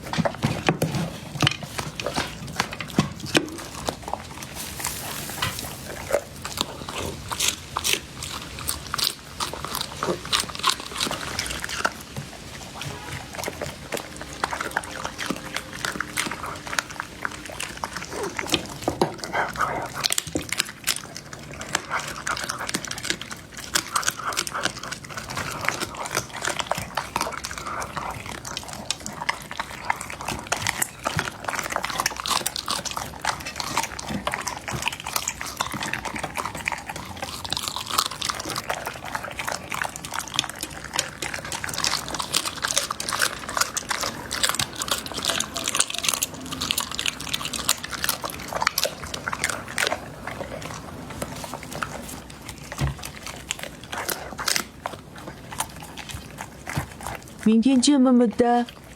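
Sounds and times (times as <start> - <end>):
dog chewing food: 0.0 - 58.9.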